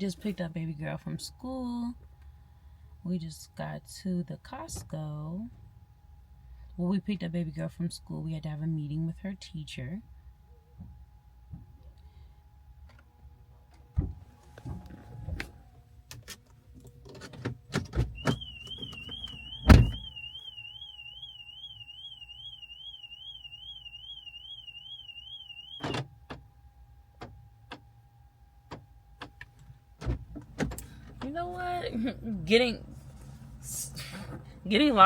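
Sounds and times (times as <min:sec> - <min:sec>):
heavy car door thump: 0:18.0 - 0:20.2
car alarm warbling siren: 0:18.0 - 0:26.1.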